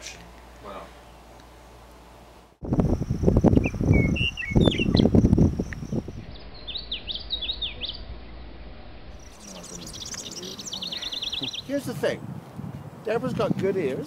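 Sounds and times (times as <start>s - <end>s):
birds chirping: 2.6s - 12.1s
choppy low rumbling: 2.6s - 13.1s.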